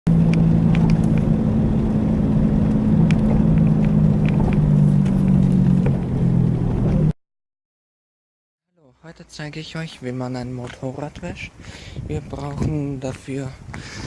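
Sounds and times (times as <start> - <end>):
engine humming: 0.1 - 7.2.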